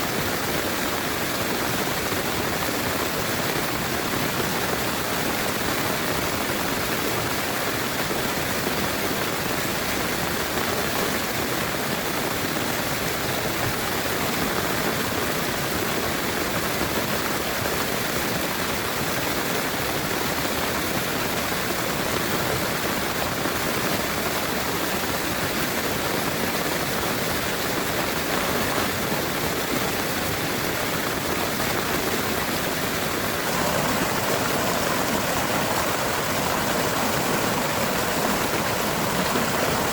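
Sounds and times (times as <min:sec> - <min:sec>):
heavy rain pouring: 0:27.0 - 0:39.9.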